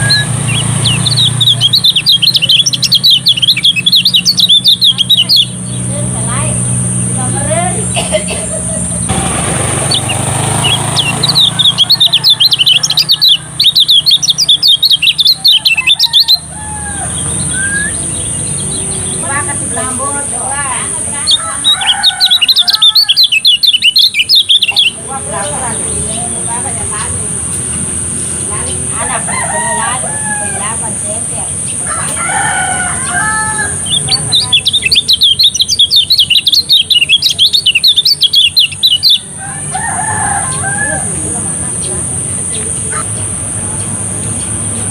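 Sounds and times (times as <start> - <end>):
bird singing high chirps: 0.0 - 7.7, 9.7 - 44.9
rooster crowing: 9.5 - 13.7, 15.4 - 18.0, 21.2 - 23.6, 28.9 - 34.6, 39.3 - 41.6.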